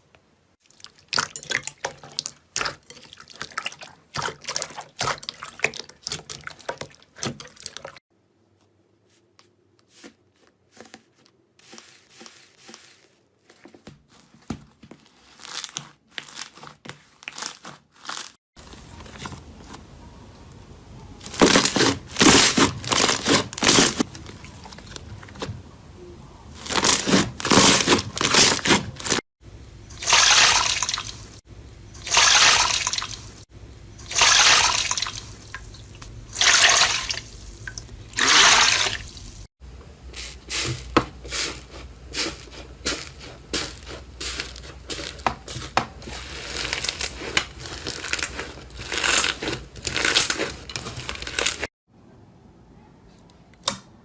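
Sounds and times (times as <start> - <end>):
slime squelching and crackling: 0.6 - 8.0, 10.7 - 19.8, 21.2 - 25.4, 41.3 - 51.7.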